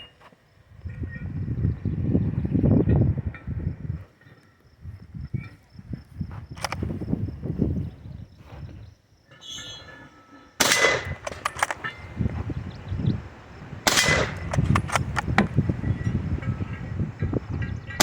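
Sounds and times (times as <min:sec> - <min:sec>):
rifle bolt clicks: 0:06.6 - 0:06.8, 0:10.6 - 0:12.0, 0:13.9 - 0:15.5
rifle shots ringing: 0:10.6 - 0:12.4, 0:13.8 - 0:16.1.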